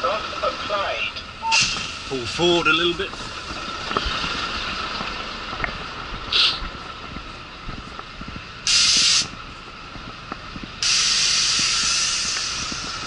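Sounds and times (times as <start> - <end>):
diesel engine idling: 0.0 - 13.0
air brakes hissing: 1.4 - 2.1, 6.3 - 6.6, 8.6 - 9.3, 10.8 - 13.0.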